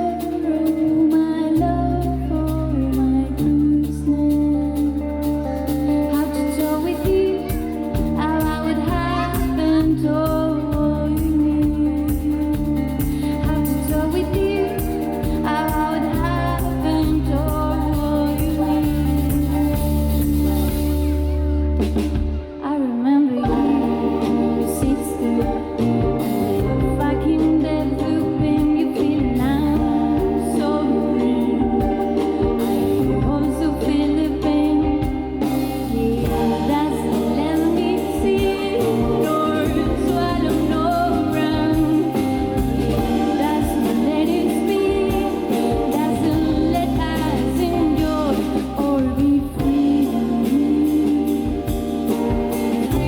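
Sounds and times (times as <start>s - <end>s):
person singing lead vocal: 0.0s - 21.3s, 22.5s - 53.0s
live band playing: 0.0s - 53.0s
cymbals: 29.0s - 53.0s.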